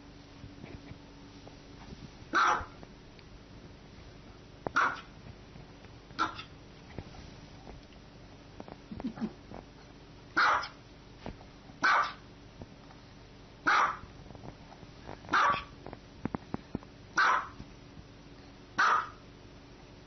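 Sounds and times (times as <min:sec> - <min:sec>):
small dog barking: 0:02.3 - 0:02.8, 0:04.7 - 0:05.1, 0:06.2 - 0:06.5, 0:10.4 - 0:10.8, 0:11.8 - 0:12.3, 0:13.6 - 0:14.1, 0:15.3 - 0:15.7, 0:17.2 - 0:17.6, 0:18.8 - 0:19.2.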